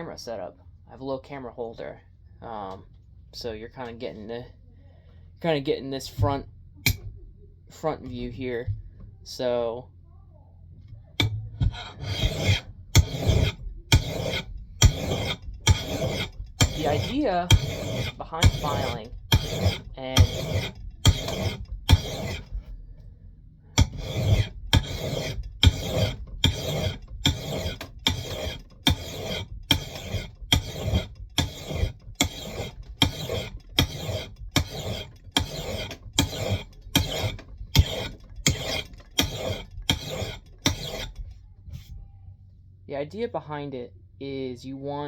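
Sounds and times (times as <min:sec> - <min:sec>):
hand file rasping on axe blade: 0:11.2 - 0:22.6, 0:23.8 - 0:41.3.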